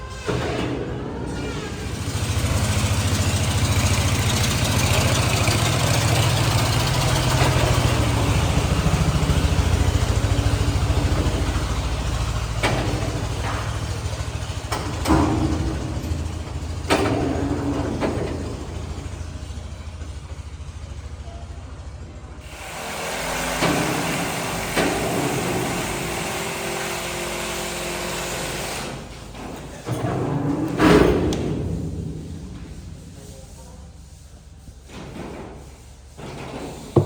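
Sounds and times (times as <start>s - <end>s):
engine running: 1.3s - 29.5s.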